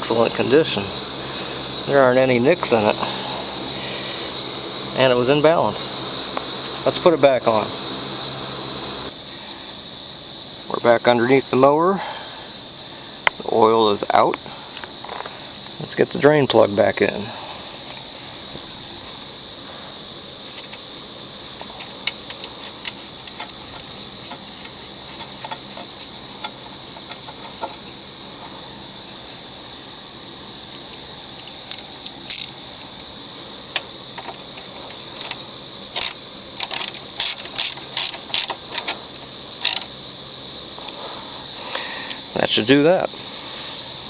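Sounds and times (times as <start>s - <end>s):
ratchet wrench clicking: 0.0s - 9.1s, 31.4s - 32.6s, 35.2s - 39.0s, 39.6s - 39.9s
high insect buzz: 0.0s - 44.0s.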